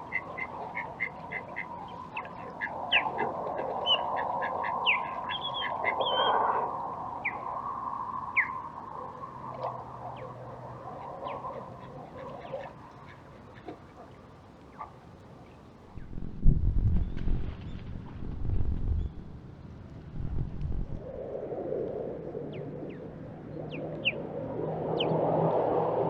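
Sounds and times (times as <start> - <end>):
distant traffic hum: 0.0 - 16.3, 17.6 - 26.0
bird whistled chirps: 4.8 - 6.4, 8.3 - 8.6.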